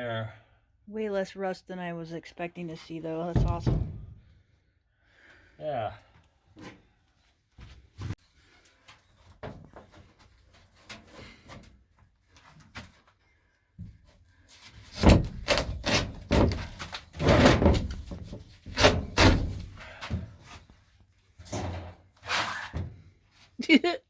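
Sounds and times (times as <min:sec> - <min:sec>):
knocks and bangs of van panels: 0:03.3 - 0:04.3, 0:14.9 - 0:20.4.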